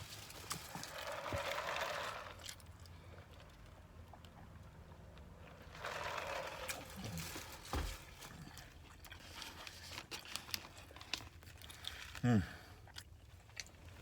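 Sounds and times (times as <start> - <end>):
thump: 7.7 - 8.0
man chewing with mouth clicks: 8.2 - 14.0.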